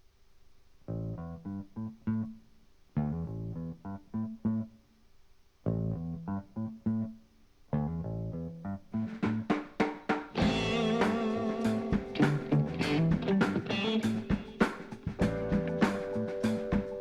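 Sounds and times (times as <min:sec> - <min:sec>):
plucked guitar and bass riff: 0:03.0 - 0:04.7, 0:05.7 - 0:09.2, 0:10.4 - 0:16.8.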